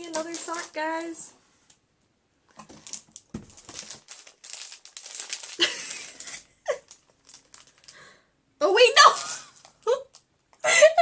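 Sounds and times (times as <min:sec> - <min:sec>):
packaging crinkling and rustling: 0:00.0 - 0:01.8, 0:02.5 - 0:08.1, 0:09.0 - 0:10.3.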